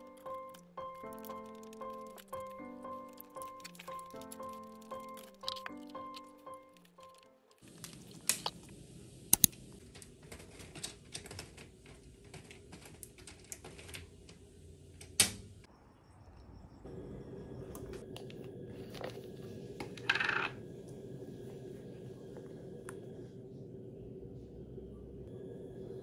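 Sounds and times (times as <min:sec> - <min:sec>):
steady low hum: 0:16.6 - 0:26.0.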